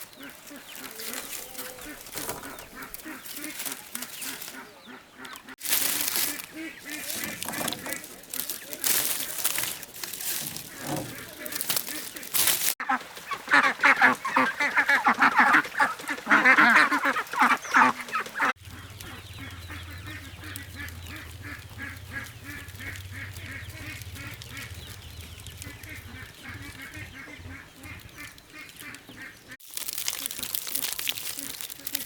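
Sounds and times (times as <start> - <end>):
ducks quacking: 0.0 - 32.0.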